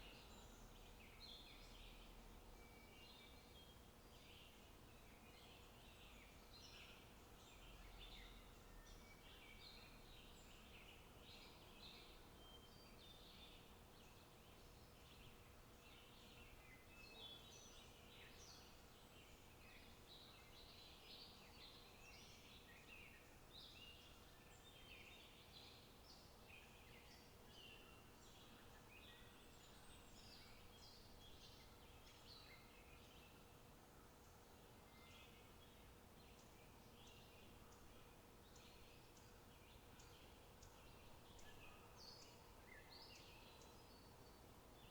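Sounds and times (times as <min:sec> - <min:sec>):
outdoor background hiss: 0:00.0 - 0:44.9.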